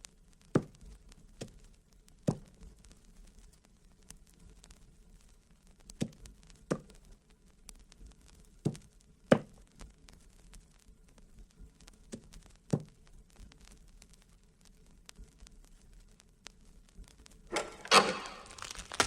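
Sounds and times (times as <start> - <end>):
vinyl surface crackle: 0.0 - 19.0.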